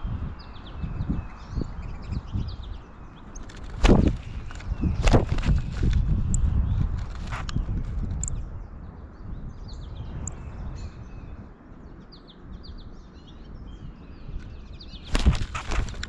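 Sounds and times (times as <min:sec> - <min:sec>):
small birds chirping: 0:00.0 - 0:16.0
rustling: 0:15.1 - 0:16.0.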